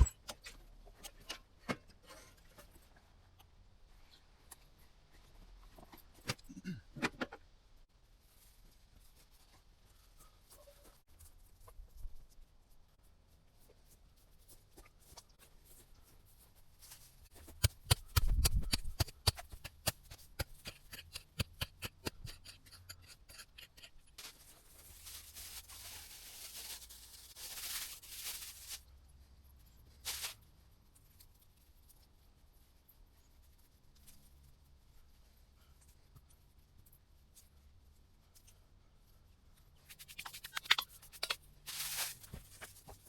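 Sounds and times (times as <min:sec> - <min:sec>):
clicks and scrapes in soil: 0:14.4 - 0:28.9, 0:39.7 - 0:43.0
rustling scraping: 0:39.8 - 0:43.0.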